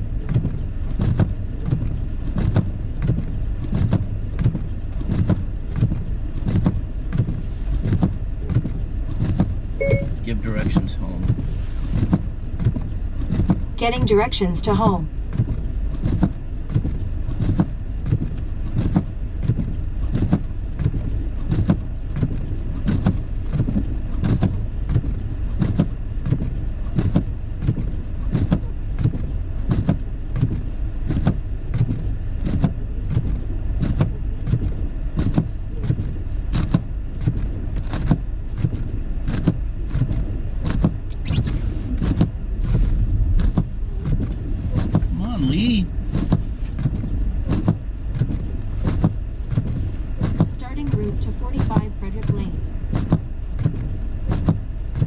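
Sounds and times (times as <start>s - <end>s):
car engine rumble: 0.0s - 55.0s
regular ticking thump: 43.1s - 55.0s.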